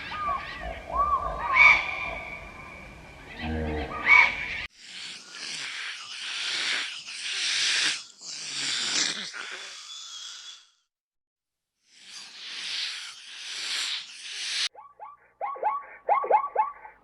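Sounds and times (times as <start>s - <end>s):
animal hissing: 4.7s - 10.8s, 11.9s - 14.7s.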